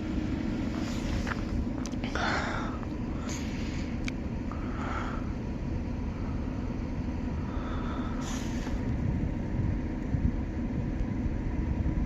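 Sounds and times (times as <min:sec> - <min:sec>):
freight train rumbling: 0:00.0 - 0:12.0
brief hiss: 0:08.2 - 0:08.8.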